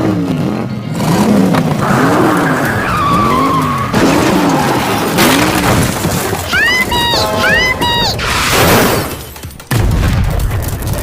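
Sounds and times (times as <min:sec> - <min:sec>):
tyre skid screech: 0:01.8 - 0:05.2.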